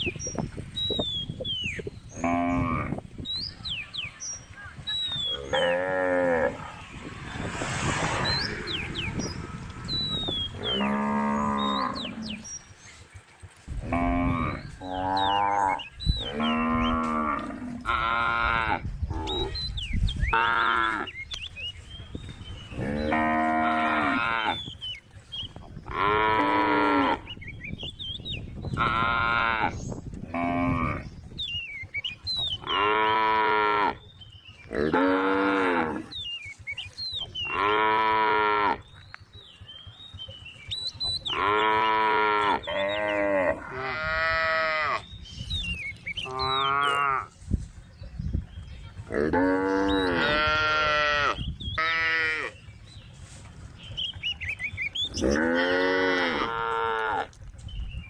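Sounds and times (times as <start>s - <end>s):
cow mooing: 5.4s - 6.8s, 10.6s - 12.4s, 34.7s - 36.1s, 37.5s - 38.8s, 41.3s - 45.0s, 46.2s - 47.3s, 49.1s - 52.5s, 55.1s - 57.3s.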